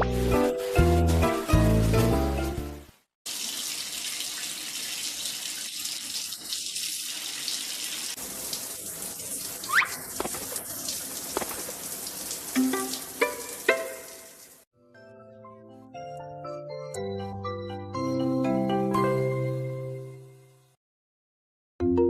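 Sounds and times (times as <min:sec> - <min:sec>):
running water hiss: 0:00.1 - 0:14.7.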